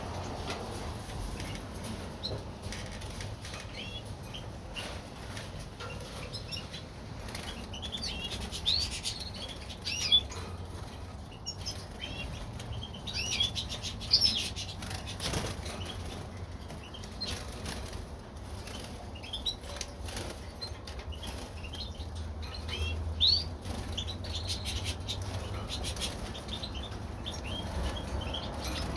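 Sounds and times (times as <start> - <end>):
small birds fluttering and flapping: 0.0 - 28.9
bird chirps and calls: 5.8 - 16.1, 18.6 - 28.9.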